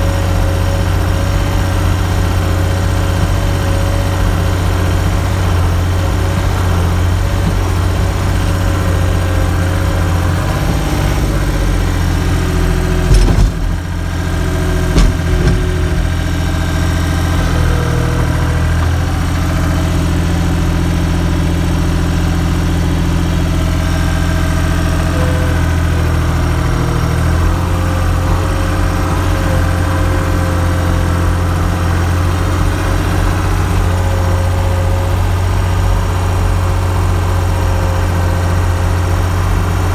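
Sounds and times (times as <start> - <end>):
skid steer loader engine running: 0.0 - 39.9
sharp clunks: 13.0 - 13.8, 14.8 - 16.2.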